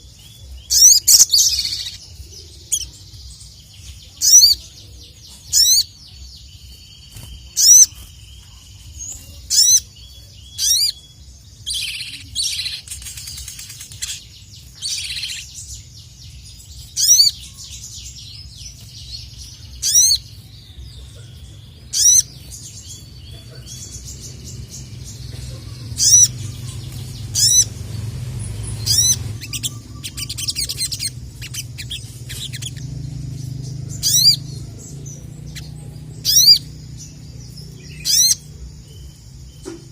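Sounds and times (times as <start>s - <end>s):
bird singing high sweeping notes: 0.0s - 39.7s
low background rumble: 0.0s - 39.9s.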